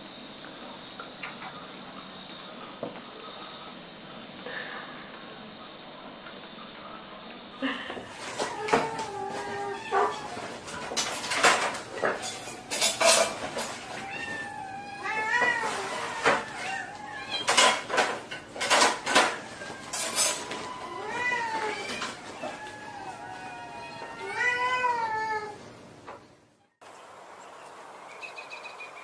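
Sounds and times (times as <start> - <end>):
cat meowing: 8.1 - 13.0, 13.6 - 17.9, 19.0 - 25.6
sharp clattering knocks: 17.4 - 20.8.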